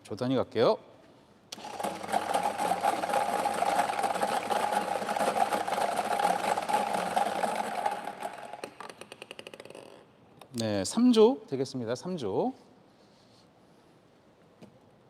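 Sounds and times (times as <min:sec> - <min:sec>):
number spinner clicking rattle: 0:01.6 - 0:09.6.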